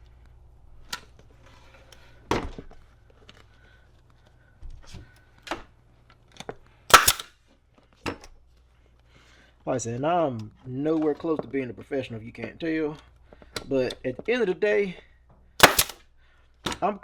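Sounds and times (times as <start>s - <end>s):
staple gun firing: 6.9s - 7.3s, 15.6s - 16.0s.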